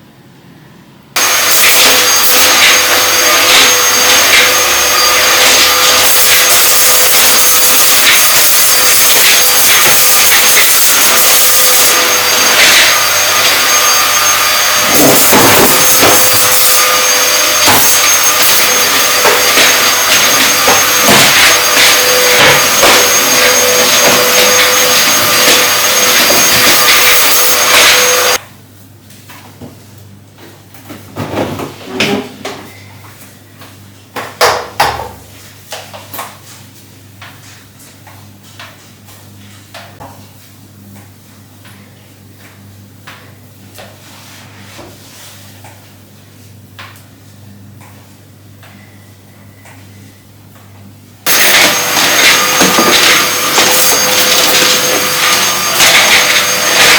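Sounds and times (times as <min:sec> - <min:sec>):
vacuum cleaner running: 0:01.1 - 0:28.4, 0:51.2 - 0:56.9
vacuum cleaner knocks: 0:51.3 - 0:56.9.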